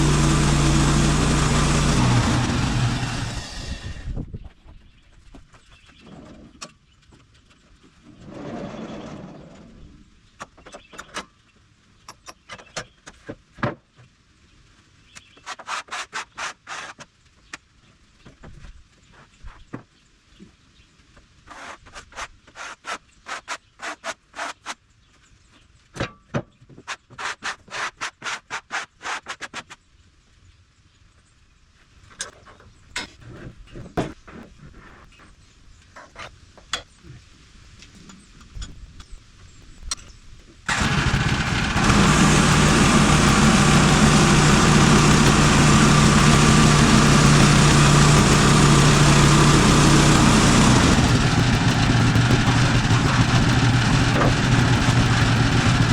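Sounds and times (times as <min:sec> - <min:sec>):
small engine stopping: 0:00.0 - 0:04.2, 0:40.7 - 0:55.9
quick scraping strokes: 0:15.4 - 0:17.0, 0:21.5 - 0:24.8, 0:26.9 - 0:29.7.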